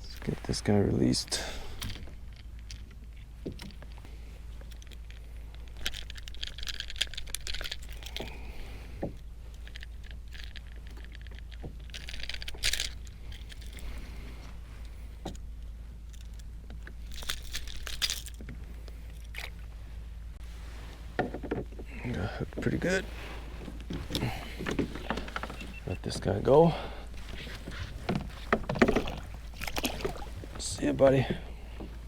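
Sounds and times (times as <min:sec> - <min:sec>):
fishing tackle jangling: 0:04.6 - 0:08.5, 0:09.5 - 0:14.0, 0:16.0 - 0:18.4.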